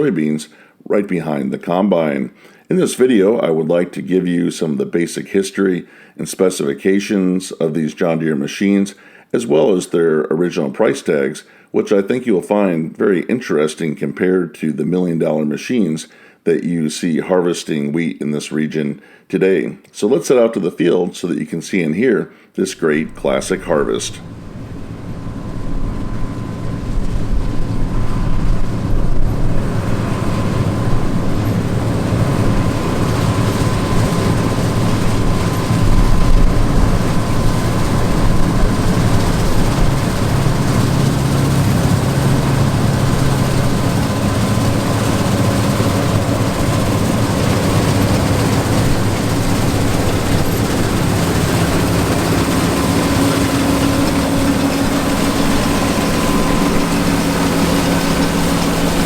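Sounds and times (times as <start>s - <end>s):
diesel farm machinery running: 22.8s - 59.0s
thin steady whine: 22.8s - 59.0s.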